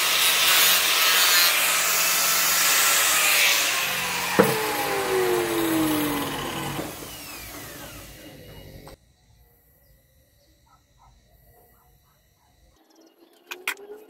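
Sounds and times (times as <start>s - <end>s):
power tool winding down: 0.0s - 9.0s.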